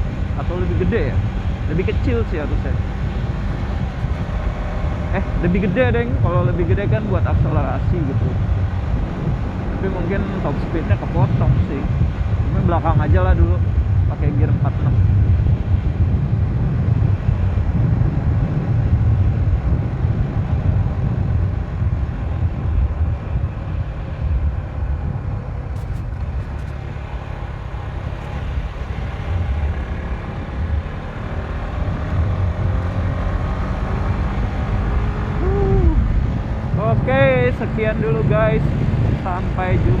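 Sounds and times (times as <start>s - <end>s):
motorcycle engine running: 0.0s - 10.4s, 20.8s - 33.4s
wind rumble on microphone: 0.0s - 40.0s.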